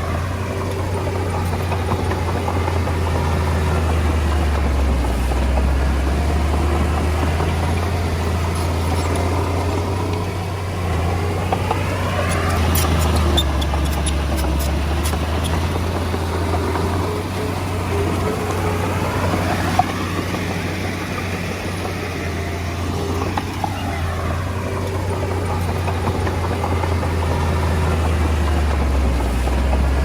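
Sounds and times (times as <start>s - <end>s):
diesel engine humming: 0.0s - 30.0s
sharp clicks and knocks: 11.5s - 17.0s.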